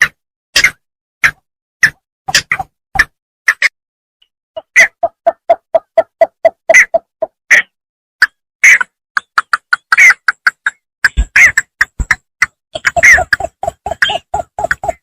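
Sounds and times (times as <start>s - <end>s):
bittern calling: 12.7s - 15.0s.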